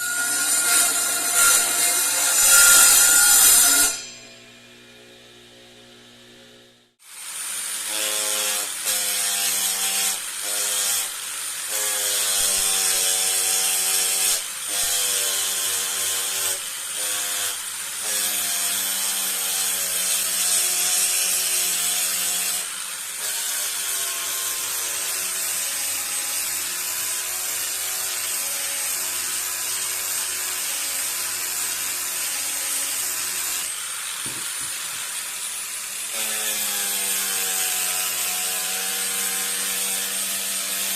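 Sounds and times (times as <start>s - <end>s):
power tool cutting wood: 0.0s - 6.3s, 7.0s - 40.9s.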